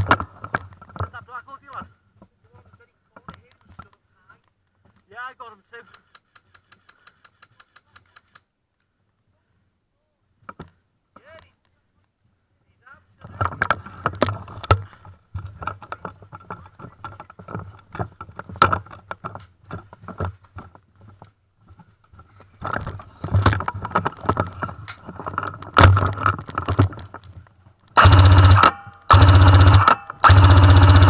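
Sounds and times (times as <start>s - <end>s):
gear clicking and rattling: 13.2s - 31.0s
airsoft gun automatic fire: 28.0s - 31.0s.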